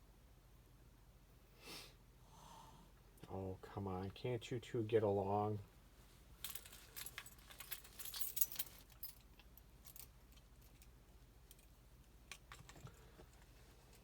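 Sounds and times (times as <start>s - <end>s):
light metallic jingling: 6.4s - 11.8s.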